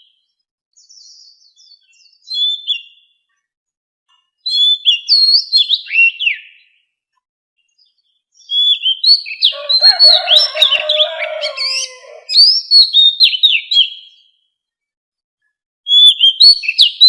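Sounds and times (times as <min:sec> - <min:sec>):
bird whistling song: 0:00.8 - 0:03.2, 0:04.5 - 0:06.8, 0:07.8 - 0:14.4, 0:15.9 - 0:17.0.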